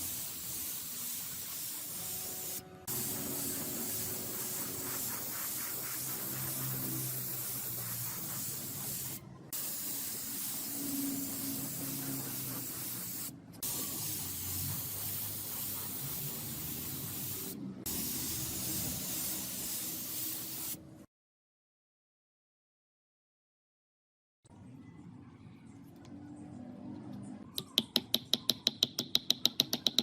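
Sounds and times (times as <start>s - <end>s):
pressurised spray hissing: 0.0s - 20.8s.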